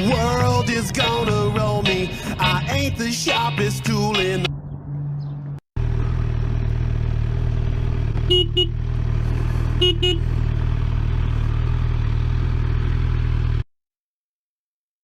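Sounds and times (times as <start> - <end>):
vehicle engine running: 0.0 - 3.0, 4.4 - 13.6
double horn beeps: 8.2 - 8.8, 9.8 - 10.3.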